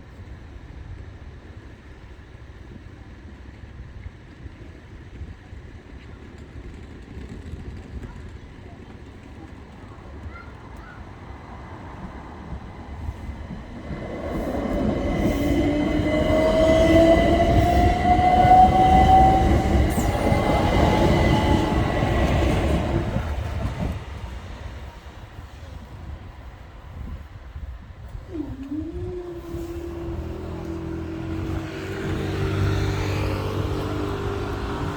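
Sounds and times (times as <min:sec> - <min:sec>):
train wheels rumbling on rail: 0:00.1 - 0:34.9
traction motors whining: 0:13.3 - 0:24.5.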